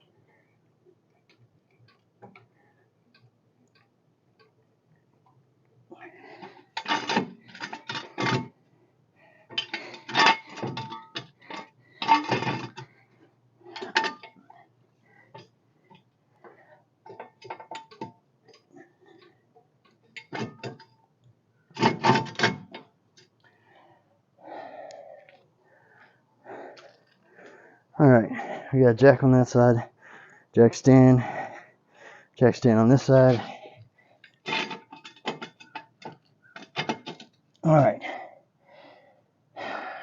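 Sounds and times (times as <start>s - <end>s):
metal clanking and rattling: 6.4s - 8.6s, 9.5s - 13.0s, 13.7s - 14.4s, 20.1s - 21.0s, 21.8s - 22.9s, 34.4s - 37.4s.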